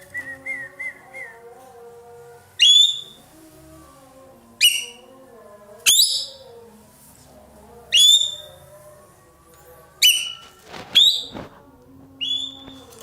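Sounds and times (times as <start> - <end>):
bird piercing whistled calls: 2.6 - 3.2, 4.6 - 5.0, 8.0 - 8.5, 11.0 - 11.3, 12.2 - 12.8.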